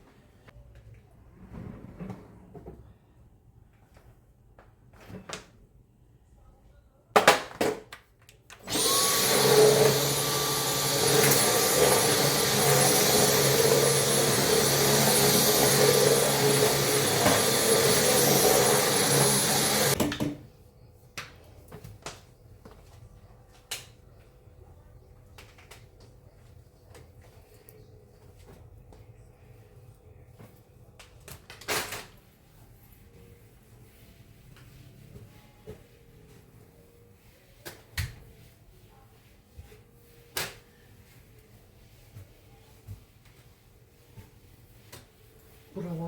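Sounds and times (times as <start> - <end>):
appliance motor whining: 8.6 - 20.0.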